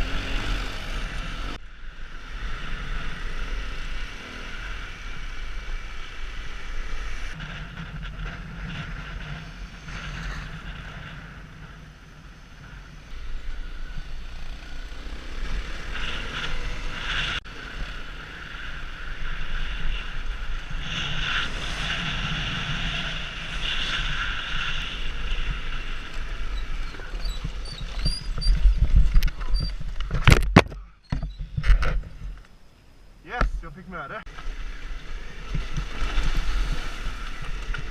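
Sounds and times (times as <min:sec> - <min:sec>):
wind buffeting microphone: 0:19.3 - 0:30.6.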